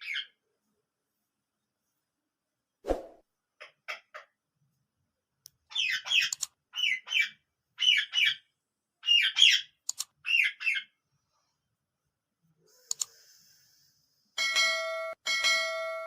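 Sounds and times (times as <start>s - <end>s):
parrot squawking: 5.7s - 11.0s.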